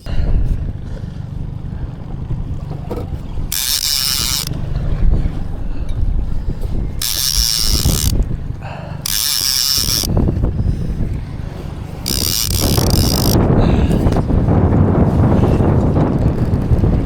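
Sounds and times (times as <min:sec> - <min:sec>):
wind and wave rumble: 0:00.0 - 0:17.0
fishing reel whirring: 0:00.8 - 0:05.6, 0:06.2 - 0:14.5.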